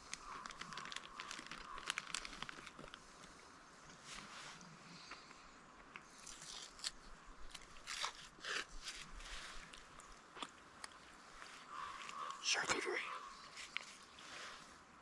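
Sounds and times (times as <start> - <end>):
person crunching a snack: 0.0 - 3.0, 6.0 - 11.1.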